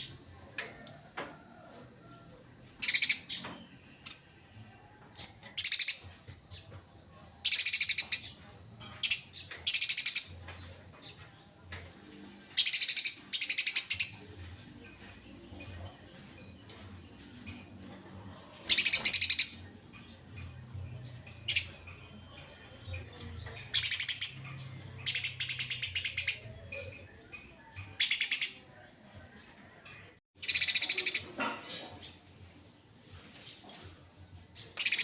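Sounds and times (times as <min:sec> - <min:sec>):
sparrow harsh chattering call: 0:18.6 - 0:20.4, 0:30.4 - 0:31.4.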